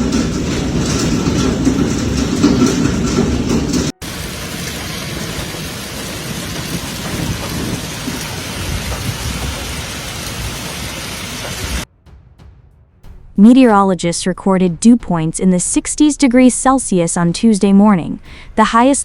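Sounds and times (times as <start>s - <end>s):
hail pelting down: 0.0s - 11.8s
low rumbling: 0.0s - 19.0s.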